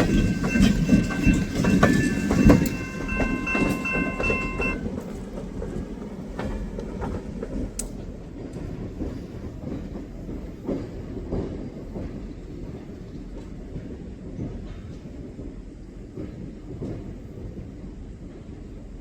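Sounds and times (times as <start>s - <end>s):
wheels clacking over rail joints: 0.0s - 15.5s
train rumbling past: 0.0s - 19.0s.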